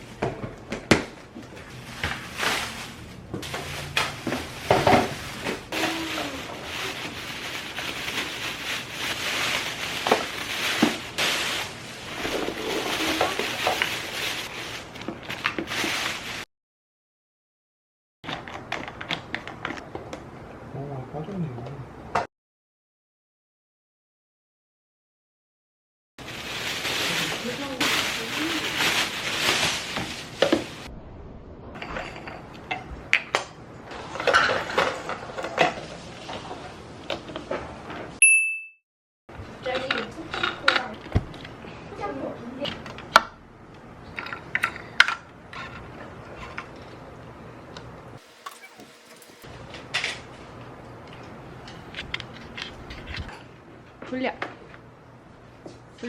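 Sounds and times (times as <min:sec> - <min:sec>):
rustling: 0:01.4 - 0:16.4, 0:26.2 - 0:30.9, 0:48.2 - 0:49.7.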